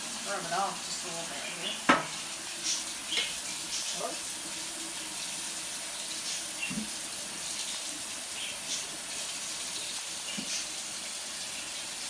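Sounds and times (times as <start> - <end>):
tap running into sink: 1.8 - 4.0, 5.9 - 7.9, 9.9 - 10.8.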